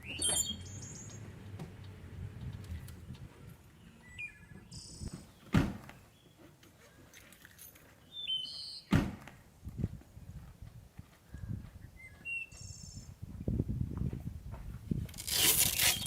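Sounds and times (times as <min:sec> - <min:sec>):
loud thuds: 0:05.1 - 0:06.0, 0:08.9 - 0:09.4.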